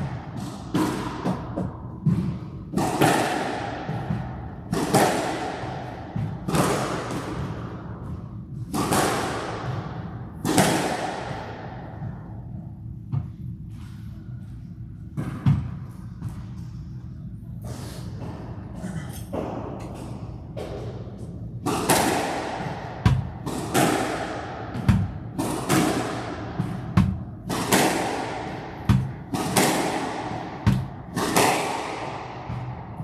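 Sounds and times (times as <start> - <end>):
squash ball thwacks on walls: 0.0 - 11.8, 21.6 - 33.0.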